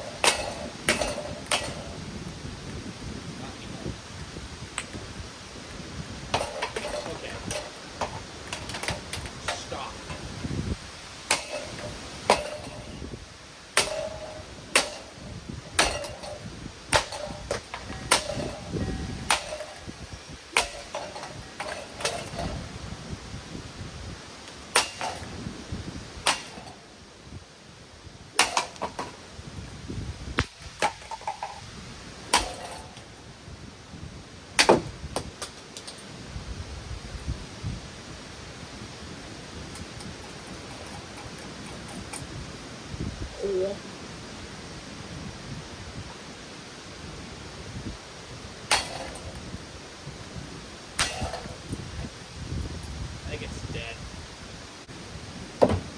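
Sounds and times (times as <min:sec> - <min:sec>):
heavy blows on metal fan housing: 0:00.0 - 0:36.2, 0:47.7 - 0:55.9.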